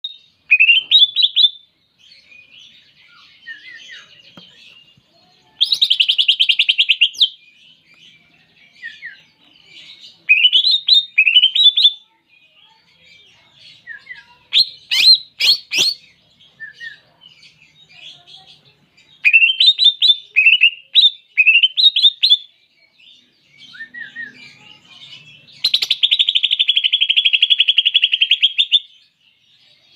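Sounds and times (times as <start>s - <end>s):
sharp bird calls: 0.0s - 12.2s, 13.7s - 18.4s, 19.1s - 22.6s, 23.5s - 29.1s
soft bird twittering: 0.0s - 29.9s.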